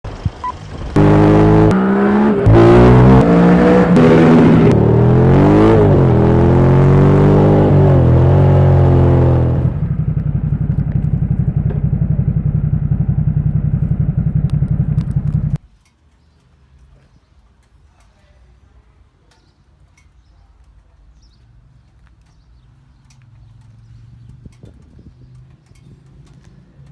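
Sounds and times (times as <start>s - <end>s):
motorcycle engine revving: 0.1s - 15.6s, 22.6s - 26.9s
faint background noise: 15.6s - 26.9s.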